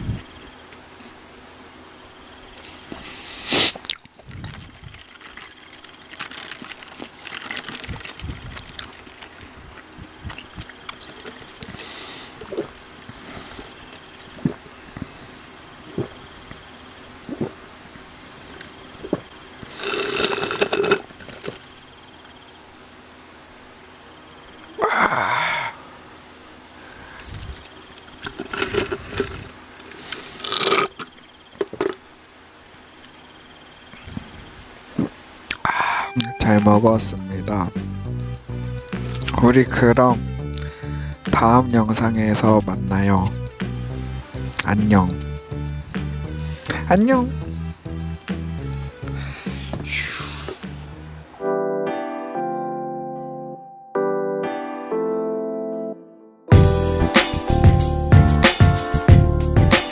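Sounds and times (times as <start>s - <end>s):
crunchy chewing: 2.6s - 17.7s, 18.4s - 22.4s, 27.2s - 32.1s
wet mouth and swallowing noises: 3.7s - 11.8s, 13.9s - 15.2s, 17.2s - 17.6s, 18.6s - 21.6s
chewing: 3.7s - 15.1s.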